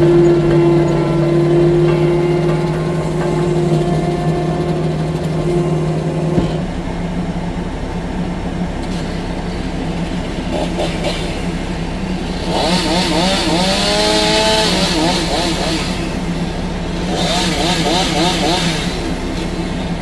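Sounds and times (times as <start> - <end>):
wavering high whine: 0.0 - 10.4
diesel engine running: 0.0 - 20.0.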